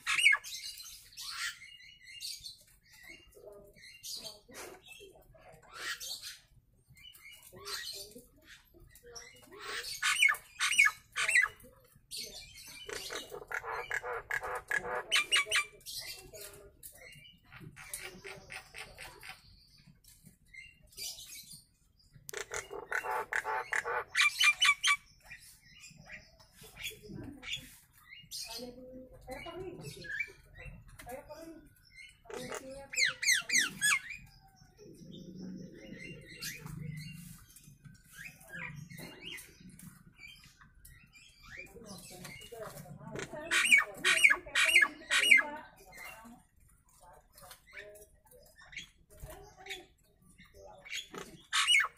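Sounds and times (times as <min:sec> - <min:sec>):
bird harsh chattering calls: 0:00.0 - 0:03.4, 0:09.2 - 0:16.4, 0:17.2 - 0:19.6, 0:22.1 - 0:28.7, 0:31.8 - 0:42.5, 0:43.1 - 0:46.0, 0:50.8 - 0:51.9.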